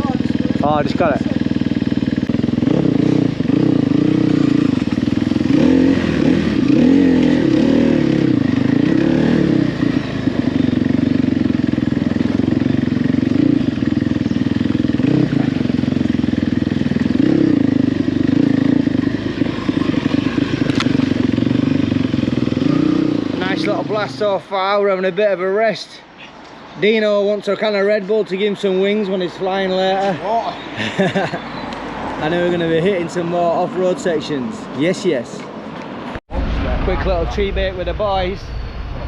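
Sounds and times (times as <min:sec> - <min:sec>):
motorcycle engine revving: 0:00.0 - 0:24.4.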